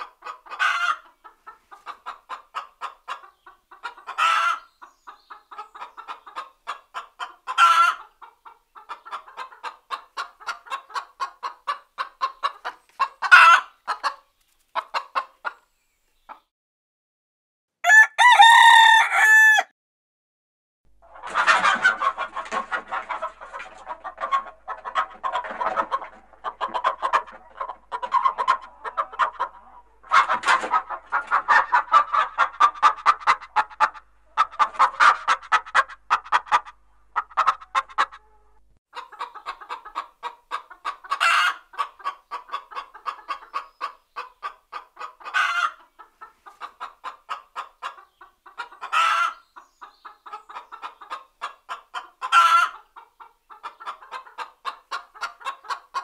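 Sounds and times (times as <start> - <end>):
hens clucking: 0.0 - 16.5, 21.0 - 56.0.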